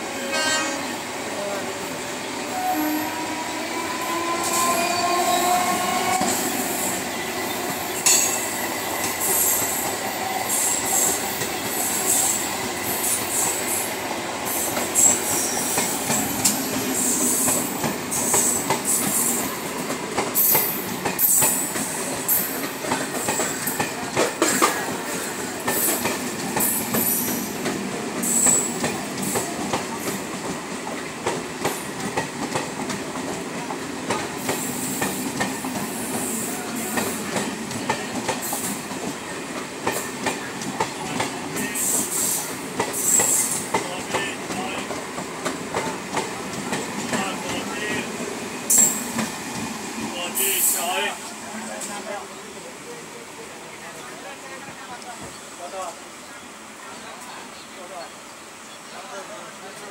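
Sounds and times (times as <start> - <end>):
train whine: 0.0 - 55.2
train wheels clattering: 5.4 - 48.1.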